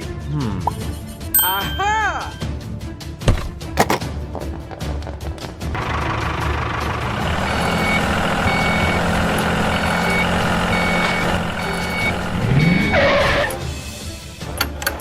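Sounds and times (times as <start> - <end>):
engine running: 5.6 - 15.0
reversing alarm beeping: 7.3 - 13.4.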